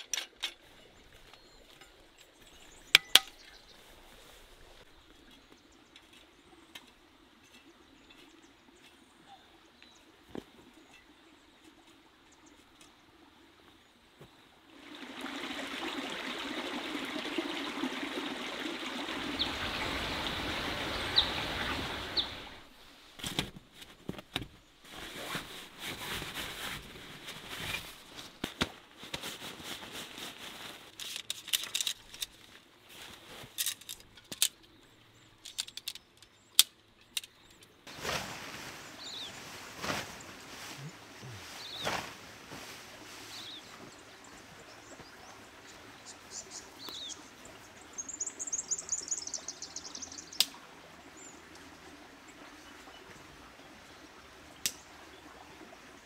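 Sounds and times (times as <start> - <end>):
running water: 0.0 - 23.2, 37.9 - 56.0
rustling: 22.6 - 34.6, 37.9 - 43.5
small knocks and clicks: 35.4 - 37.7.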